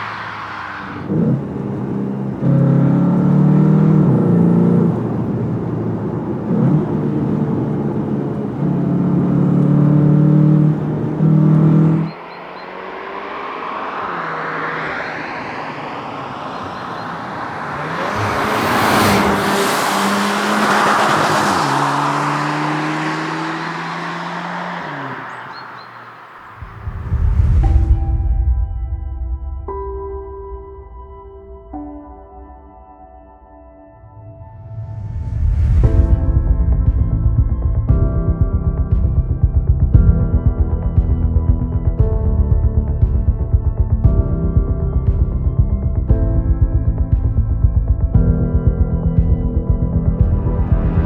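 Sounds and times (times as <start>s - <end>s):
car passing by: 0.0s - 7.7s, 8.4s - 28.6s, 34.0s - 37.4s, 49.9s - 51.0s
car engine revving hard: 0.0s - 27.0s.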